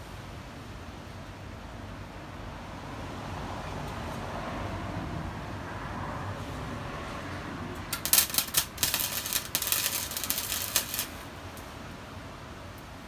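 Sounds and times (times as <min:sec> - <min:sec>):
welding arc crackling: 0:07.9 - 0:11.8.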